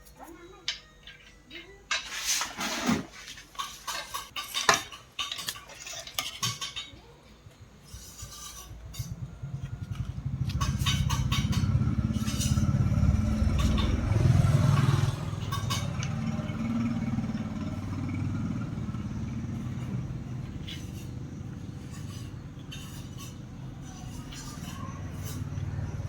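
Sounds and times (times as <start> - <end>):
low pulsing motor rumble: 8.6 - 26.0.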